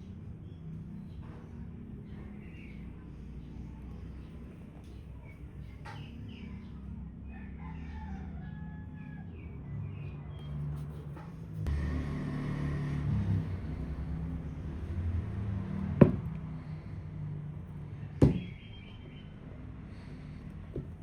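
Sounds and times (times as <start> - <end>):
vehicle engine rumbling: 8.9 - 21.0
sharp knocks: 18.2 - 18.5.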